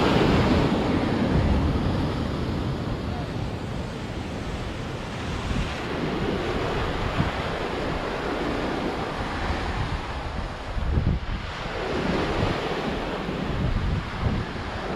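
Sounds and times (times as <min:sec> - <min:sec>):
sea waves breaking: 0:00.0 - 0:14.9
wind buffeting microphone: 0:00.0 - 0:14.9.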